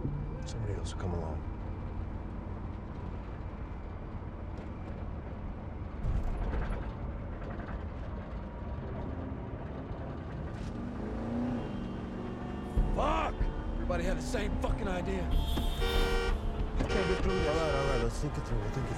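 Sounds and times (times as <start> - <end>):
vehicle engine rumble: 0.0 - 18.9.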